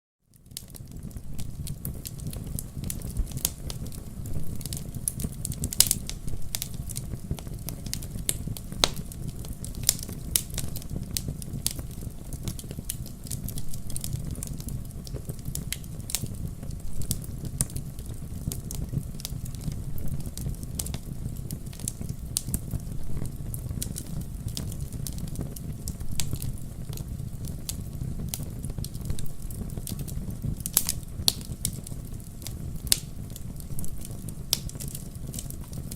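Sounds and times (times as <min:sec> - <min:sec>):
campfire flames rumbling: 0:00.3 - 0:35.9
wood crackling and popping: 0:00.3 - 0:35.9.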